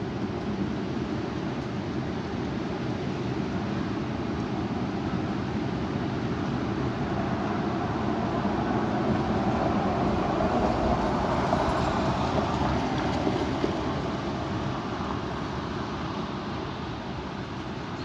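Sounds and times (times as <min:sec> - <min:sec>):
strong wind buffeting microphone: 0:04.6 - 0:17.9.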